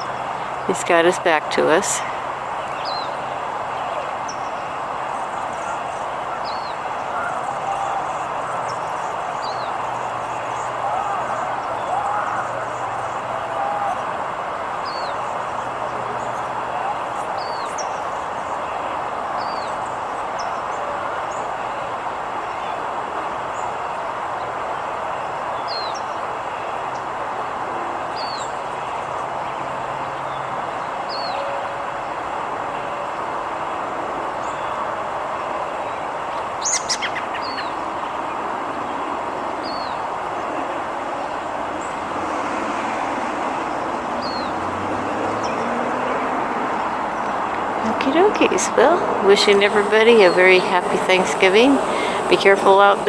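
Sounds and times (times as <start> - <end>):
traffic noise: 0.0 - 53.0.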